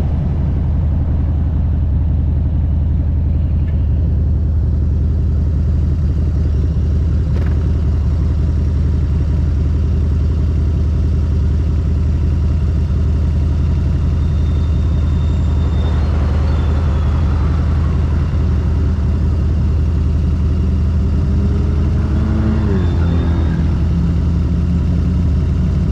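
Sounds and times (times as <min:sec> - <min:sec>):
motorcycle engine droning: 0:00.0 - 0:25.9
engine tone gliding down: 0:13.2 - 0:25.9.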